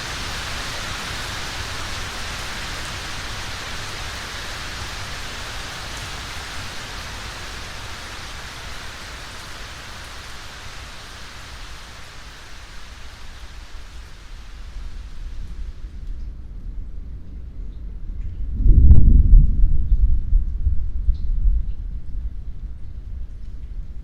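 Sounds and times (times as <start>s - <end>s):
steady rain hissing: 0.0s - 24.0s
low rumble: 14.6s - 24.0s.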